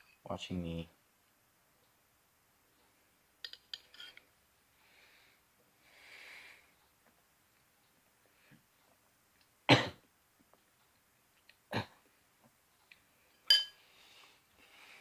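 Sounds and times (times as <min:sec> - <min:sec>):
utensil clinking against dish: 0:13.4 - 0:13.8.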